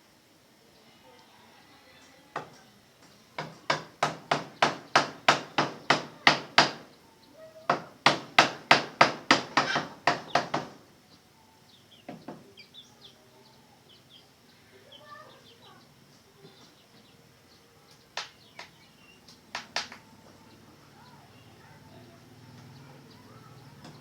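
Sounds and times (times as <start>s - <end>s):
faint bird chirps: 10.2s - 19.4s, 20.0s - 24.0s.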